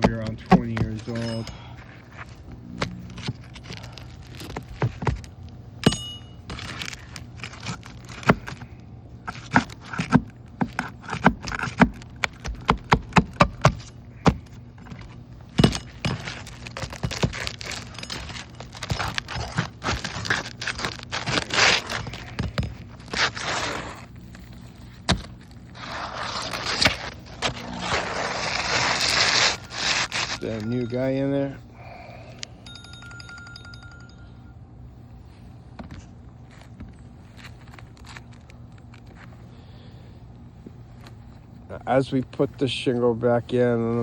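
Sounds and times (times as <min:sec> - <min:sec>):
shingles scraping: 0:00.0 - 0:05.5, 0:06.4 - 0:31.3, 0:35.9 - 0:39.4.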